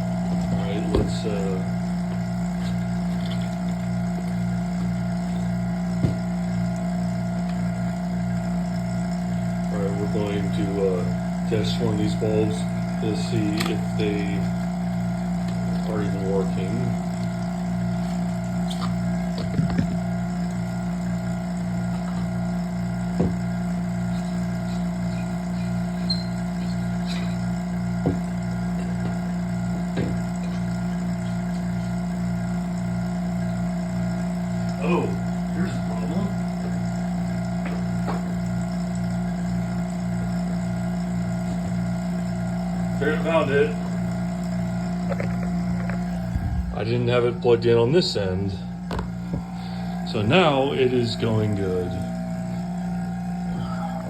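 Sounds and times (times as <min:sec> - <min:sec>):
vacuum pump humming: 0:00.0 - 0:54.0
short knocks: 0:28.0 - 0:29.2.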